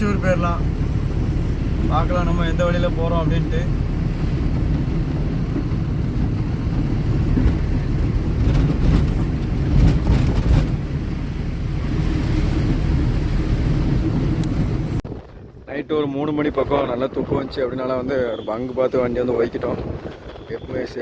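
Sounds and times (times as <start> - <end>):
diesel truck engine running: 0.0 - 15.4
road noise: 0.0 - 21.0.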